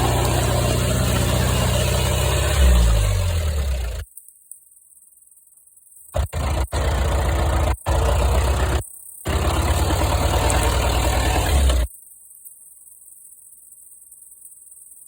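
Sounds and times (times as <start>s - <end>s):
car engine running: 0.0s - 4.0s, 6.2s - 11.9s.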